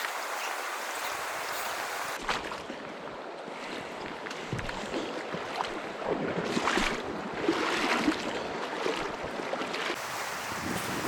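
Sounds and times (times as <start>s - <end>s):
river water rushing: 0.0s - 2.2s, 9.7s - 11.0s
wind on microphone: 10.0s - 11.0s.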